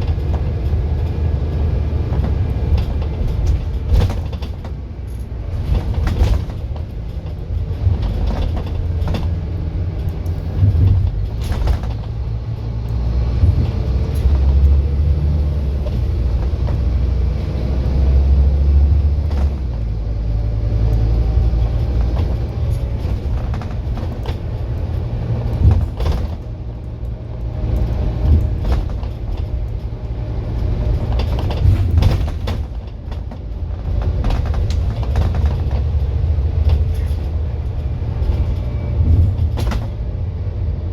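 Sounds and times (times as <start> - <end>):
diesel bus engine rumble: 0.0 - 40.9
knocks and rattles: 2.0 - 12.6, 21.2 - 40.1.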